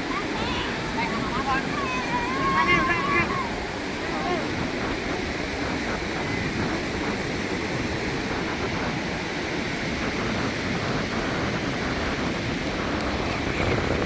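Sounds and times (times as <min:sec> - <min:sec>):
small waves washing onto shore: 0:00.0 - 0:14.0.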